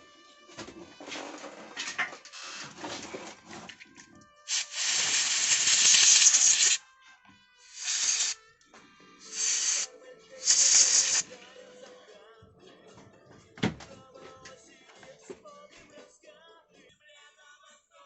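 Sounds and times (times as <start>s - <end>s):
aerosol can spraying: 2.3s - 2.7s, 4.5s - 6.8s, 7.7s - 8.4s, 9.2s - 11.3s.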